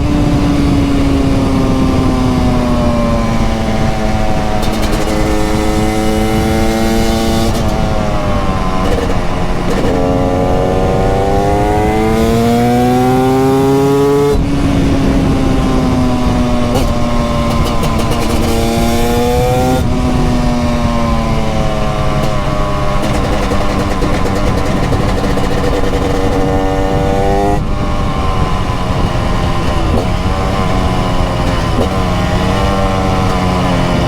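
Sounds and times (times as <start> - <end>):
motorcycle two-stroke engine revving: 0.0 - 34.0.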